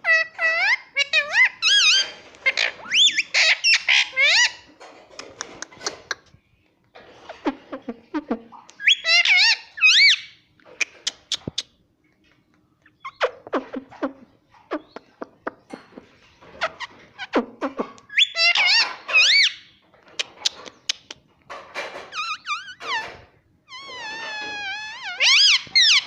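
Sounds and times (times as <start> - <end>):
parrot squawking: 0.0 - 4.7, 7.3 - 11.7, 16.5 - 21.1, 22.1 - 26.0
parrot clicking chatter: 20.2 - 21.2.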